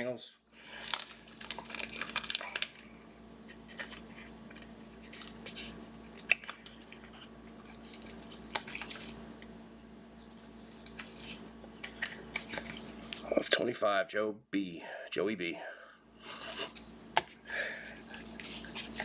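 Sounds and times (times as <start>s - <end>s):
trading cards sliding and rustling: 10.2s - 13.4s, 16.2s - 19.0s.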